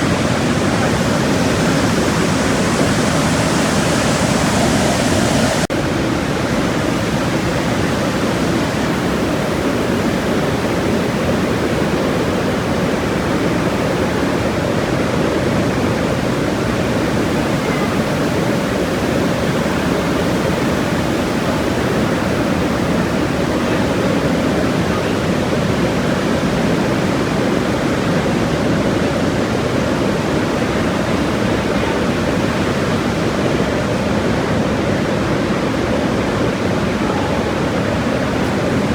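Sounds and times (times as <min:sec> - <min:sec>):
waterfall rushing: 0:00.0 - 0:25.2, 0:35.7 - 0:38.9.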